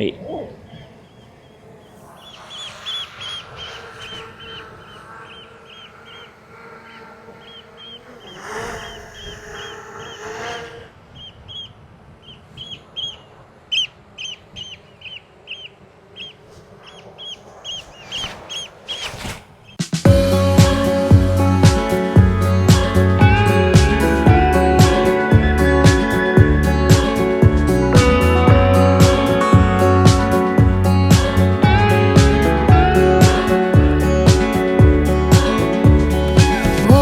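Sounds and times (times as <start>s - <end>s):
oystercatchers piping alarm calls: 0.6s - 19.8s.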